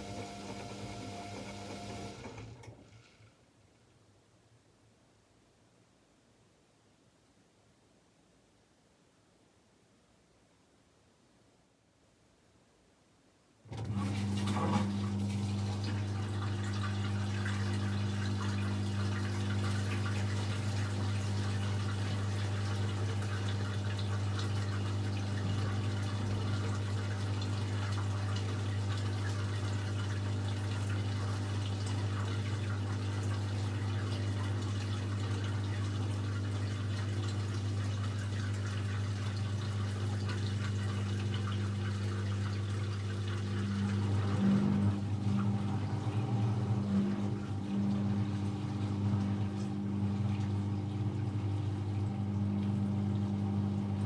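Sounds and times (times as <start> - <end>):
washing machine filling with water: 0.0 - 3.2, 13.7 - 54.0
low electric hum: 30.5 - 54.0.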